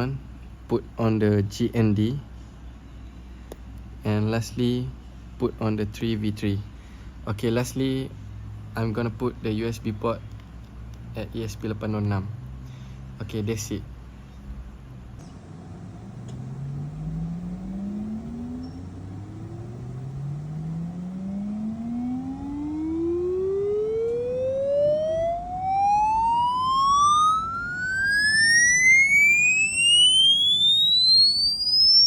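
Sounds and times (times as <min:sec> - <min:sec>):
fainter higher tones: 0:15.2 - 0:32.0
sine tone sweeping upward: 0:15.2 - 0:32.0.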